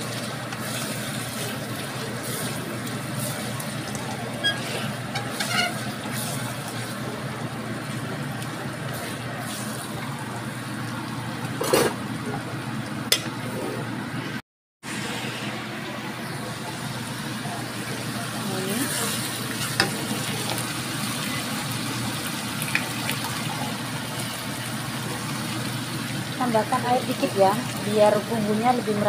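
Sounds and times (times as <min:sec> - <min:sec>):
eggs sizzling in a wok: 0:00.0 - 0:10.2, 0:16.7 - 0:29.0
spatula scraping wok: 0:04.2 - 0:07.0.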